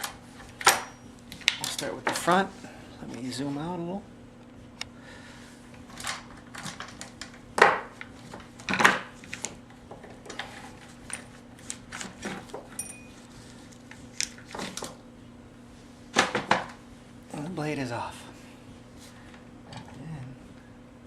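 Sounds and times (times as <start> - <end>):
chain links clinking and rattling: 12.8 - 13.1.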